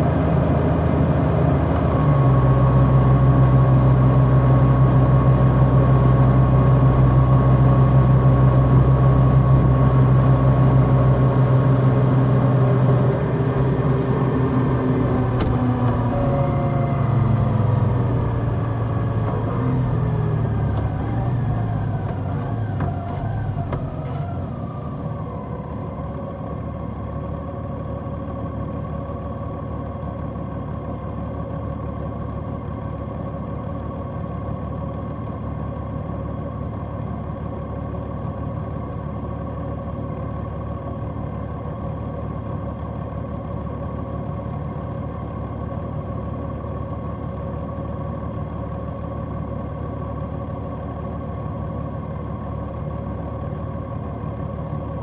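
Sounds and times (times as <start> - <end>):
motorcycle engine slowing: 12.7 - 26.3
road and wind rush: 13.2 - 26.3.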